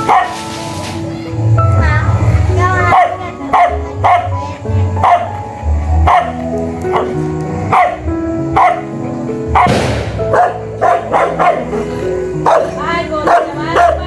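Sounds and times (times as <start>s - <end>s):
dog barking: 0.0s - 0.4s, 2.8s - 5.4s, 6.0s - 14.0s
music with held notes: 0.0s - 14.0s.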